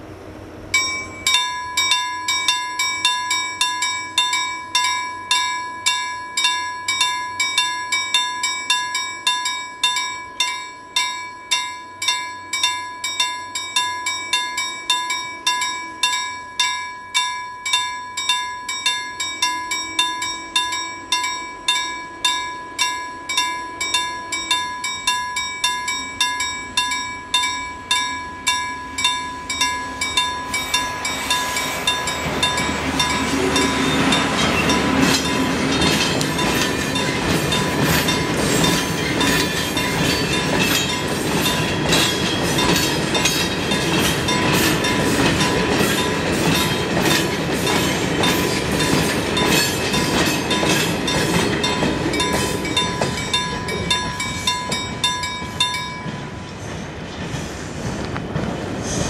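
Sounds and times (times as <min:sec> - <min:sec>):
level-crossing warning bell: 0:00.7 - 0:57.4
train wheels clattering over rail joints: 0:29.6 - 0:59.0.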